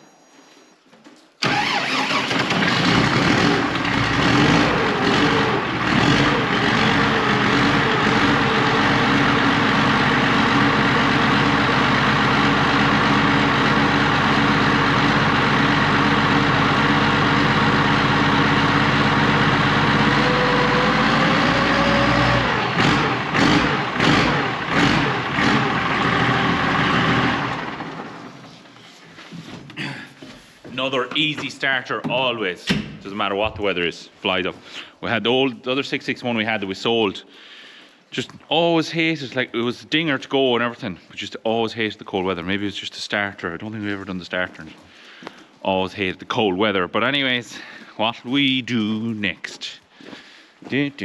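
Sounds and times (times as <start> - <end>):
engine knocks: 1.4 - 28.3
diesel tractor engine starting and running: 1.4 - 28.8.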